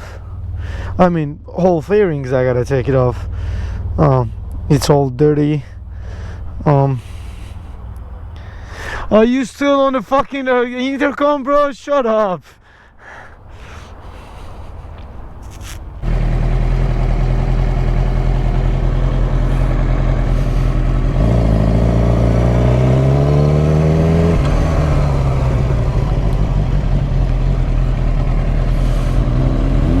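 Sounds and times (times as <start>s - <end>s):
motorcycle engine revving: 16.0s - 30.0s.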